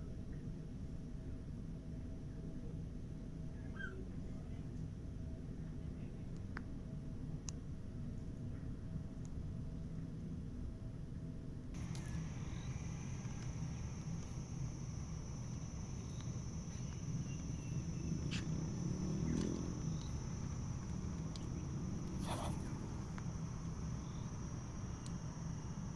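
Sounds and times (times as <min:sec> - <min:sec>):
faint clicks: 0:11.8 - 0:25.9
high-pitched insect drone: 0:11.8 - 0:25.9
low background rumble: 0:11.8 - 0:25.9.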